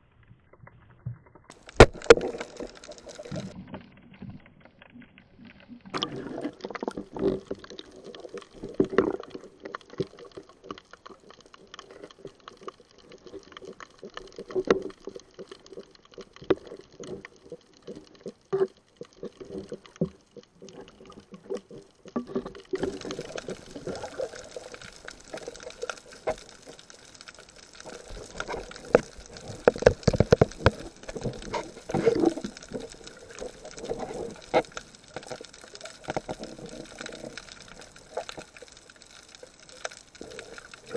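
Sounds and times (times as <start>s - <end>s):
water sloshing and bubbling: 0.0s - 40.9s.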